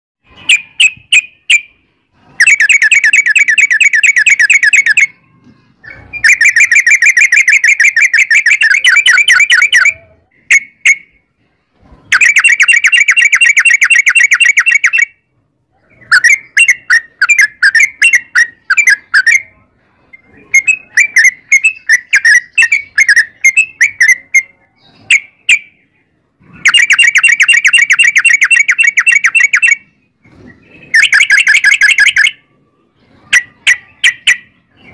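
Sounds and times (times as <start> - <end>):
bird rapid trills: 0.3 - 5.2, 12.1 - 15.1, 26.6 - 32.4.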